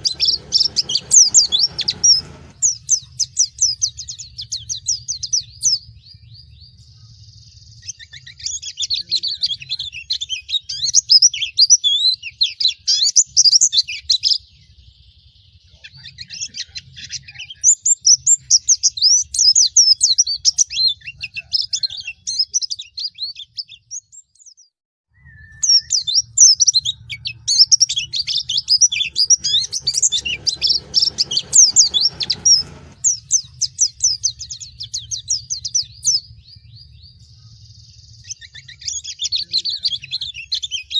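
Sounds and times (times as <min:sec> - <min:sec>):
bird twittering: 0:25.2 - 0:40.9.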